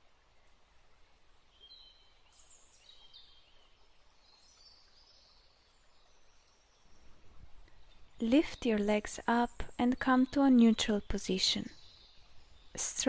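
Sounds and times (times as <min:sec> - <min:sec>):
background hiss: 0:00.0 - 0:13.0
faint birdsong: 0:00.3 - 0:13.0.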